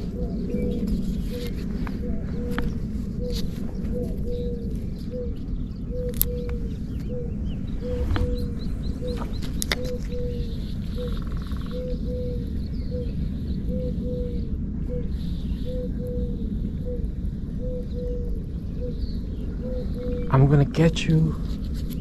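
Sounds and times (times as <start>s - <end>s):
bird cooing: 0.0s - 20.5s
low rumble of wind or water: 0.0s - 22.0s.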